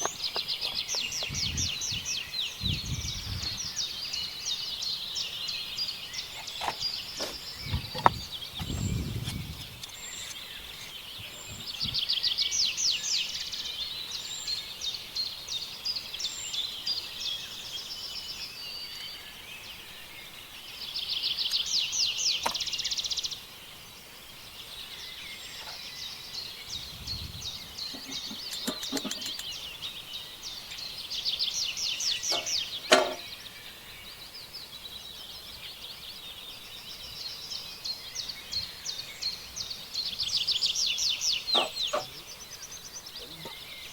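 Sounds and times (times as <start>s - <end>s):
small birds trilling: 0.0s - 43.9s
sharp knock: 32.3s - 33.2s.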